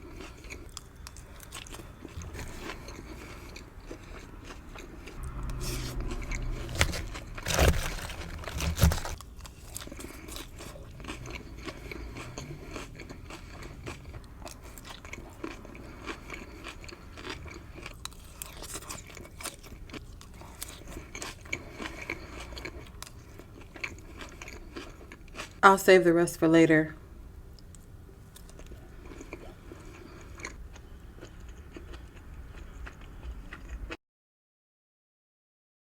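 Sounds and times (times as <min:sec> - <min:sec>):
person chewing food: 0:00.0 - 0:25.6, 0:27.6 - 0:34.0
loud crunching bites: 0:01.6 - 0:15.6.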